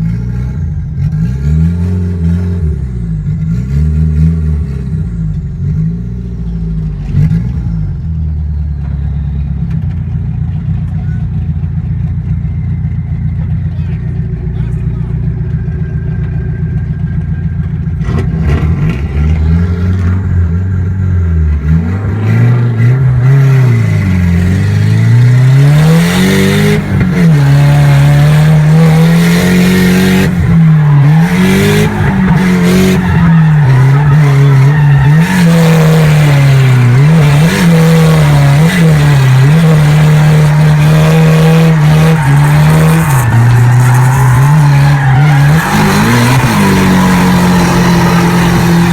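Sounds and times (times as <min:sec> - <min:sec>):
car engine revving: 0:00.0 - 0:48.9
tyre squeal: 0:25.4 - 0:48.9.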